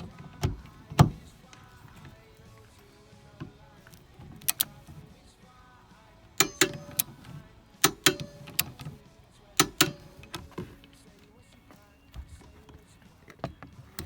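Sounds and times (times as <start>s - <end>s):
torque wrench double clicks: 3.8s - 5.0s, 6.4s - 9.0s, 9.6s - 11.0s.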